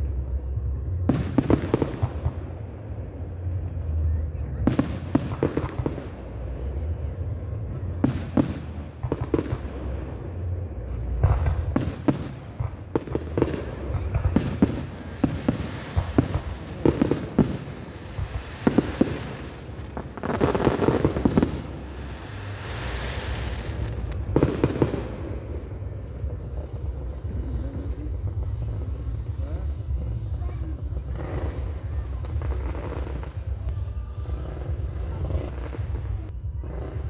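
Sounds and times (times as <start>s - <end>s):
fireworks bangs and pops: 0.0s - 37.0s
fireworks crackling bursts: 0.0s - 37.0s
low rumble: 0.0s - 37.0s.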